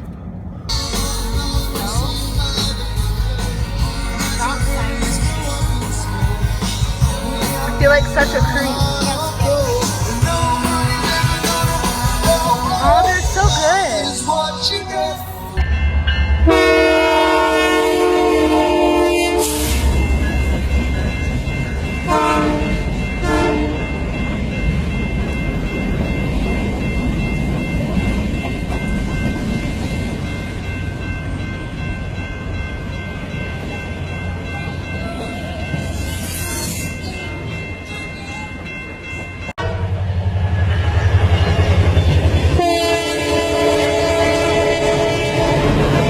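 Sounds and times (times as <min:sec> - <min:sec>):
train rumble: 0:00.0 - 0:46.0
locomotive horn blasts: 0:16.5 - 0:19.9, 0:22.1 - 0:23.8, 0:42.6 - 0:46.0.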